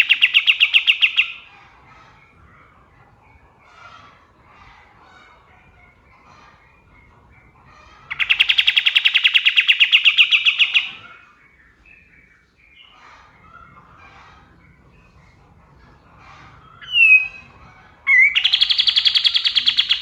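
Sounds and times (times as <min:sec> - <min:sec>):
faint bird chirps: 0:16.4 - 0:20.0
songbird rapid trill: 0:16.8 - 0:17.5, 0:18.1 - 0:20.0.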